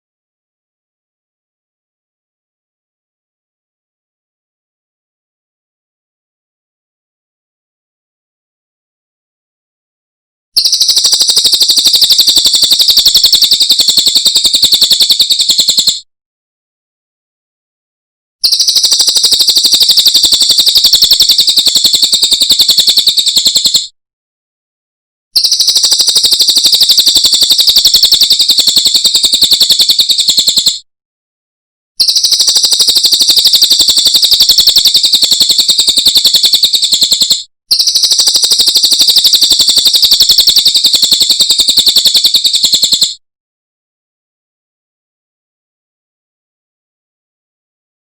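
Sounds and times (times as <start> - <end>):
songbird high-pitched trill: 10.6 - 16.0, 18.4 - 23.9, 25.4 - 30.8, 32.0 - 43.1.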